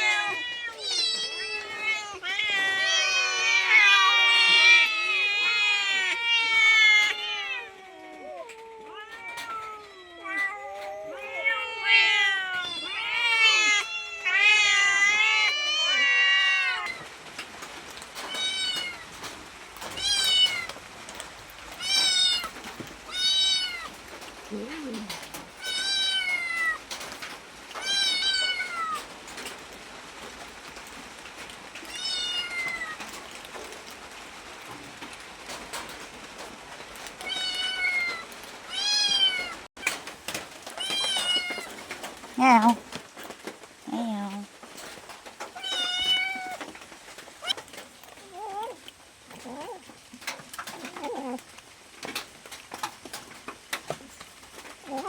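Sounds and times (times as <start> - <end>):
cat meowing: 0.0 - 17.1, 18.3 - 19.1, 19.9 - 20.8, 21.8 - 23.9, 24.5 - 27.0, 27.8 - 29.0, 31.8 - 33.1, 37.2 - 39.7, 42.4 - 42.8, 45.6 - 46.7, 47.4 - 49.9, 50.7 - 51.5.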